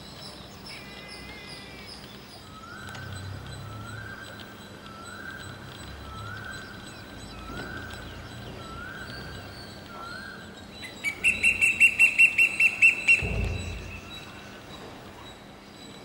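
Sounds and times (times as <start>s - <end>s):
rising bird call: 8.6s - 14.5s
fast high whistled bird notes: 10.1s - 14.4s
low thump: 13.2s - 14.8s.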